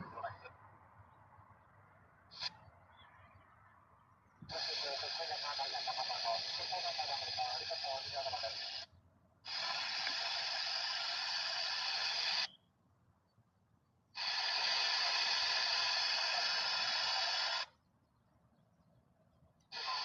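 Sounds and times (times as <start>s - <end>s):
radio static hiss: 0.0s - 0.5s, 2.3s - 2.6s, 4.4s - 8.9s, 9.5s - 12.5s, 14.2s - 17.7s, 19.7s - 20.0s.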